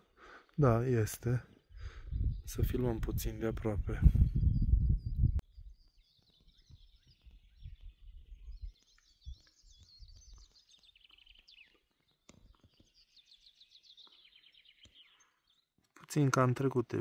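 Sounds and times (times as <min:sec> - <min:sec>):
faint songbird singing: 0:00.0 - 0:17.0.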